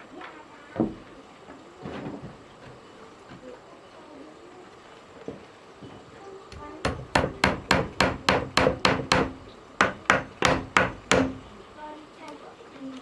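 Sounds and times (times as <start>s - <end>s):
hammer blows on wood: 6.6s - 11.6s.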